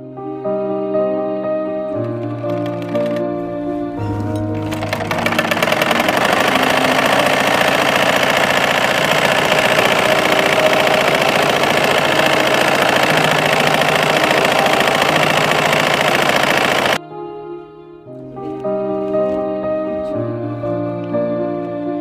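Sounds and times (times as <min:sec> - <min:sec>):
sewing machine running fast: 0:02.3 - 0:03.2, 0:04.6 - 0:17.0.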